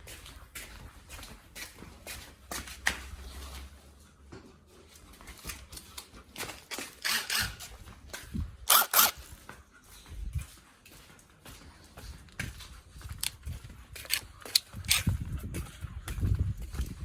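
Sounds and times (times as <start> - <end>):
hand tools clicking and knocking: 6.0 - 7.7, 8.7 - 9.2, 14.0 - 15.1.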